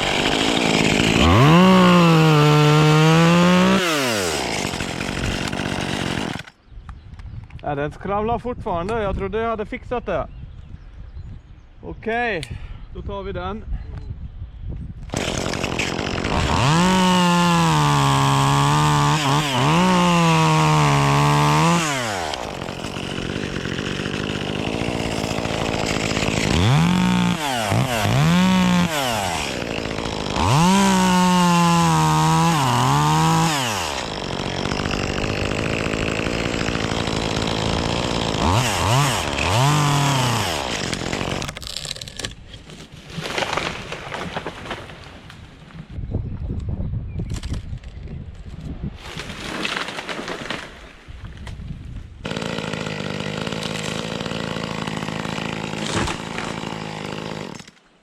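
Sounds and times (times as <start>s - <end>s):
chainsaw idling: 0.0s - 6.5s, 15.2s - 41.5s, 52.2s - 57.7s
chainsaw revving: 0.0s - 6.5s, 15.1s - 41.6s, 52.2s - 57.8s.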